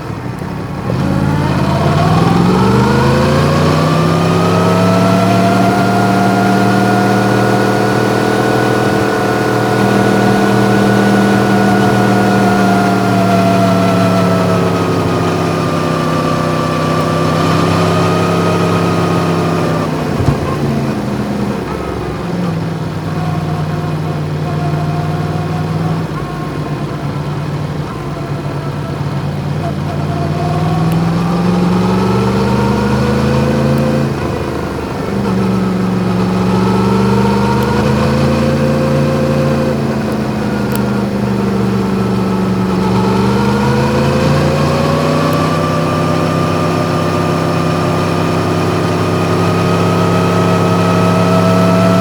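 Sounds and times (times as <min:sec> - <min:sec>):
motorcycle engine revving: 0:00.0 - 0:52.0
sharp knock: 0:20.2 - 0:20.8.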